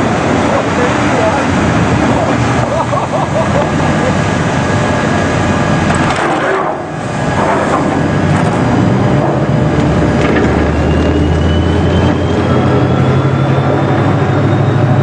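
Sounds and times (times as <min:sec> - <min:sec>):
faint rising whine: 0:00.0 - 0:15.0
heavy machinery engine running: 0:00.0 - 0:15.0.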